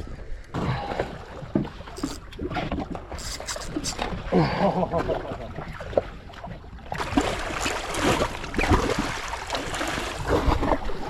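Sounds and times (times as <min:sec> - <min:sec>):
sharp click: 0:02.0 - 0:02.2, 0:03.2 - 0:04.0
water splashing against boat hull: 0:06.9 - 0:11.0.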